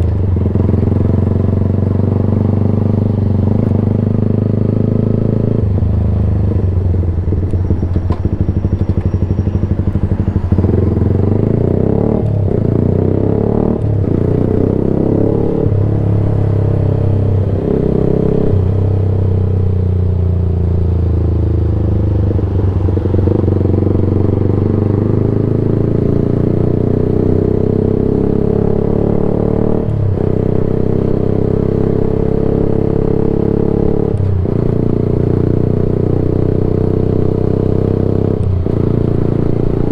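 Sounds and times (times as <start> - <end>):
sports motorcycle engine revving: 8.2 - 18.8.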